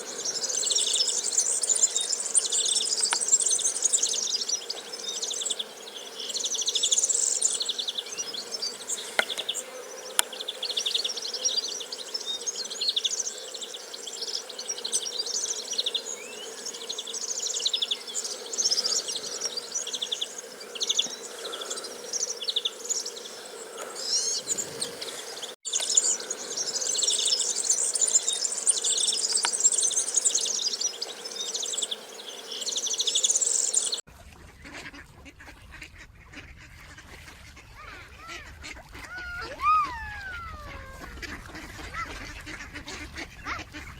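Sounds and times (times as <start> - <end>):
insects chirping: 0.0 - 34.0.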